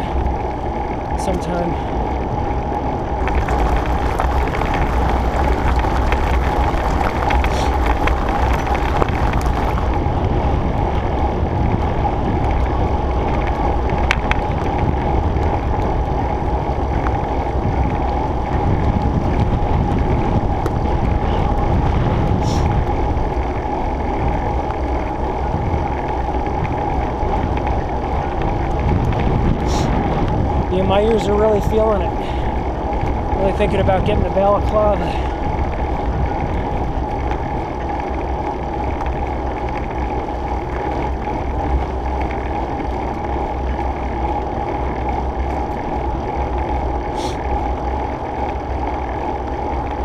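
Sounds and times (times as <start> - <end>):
steady hum: 0.0 - 14.2
bicycle tyre noise: 0.0 - 50.0
wind rushing over microphone: 0.0 - 50.0.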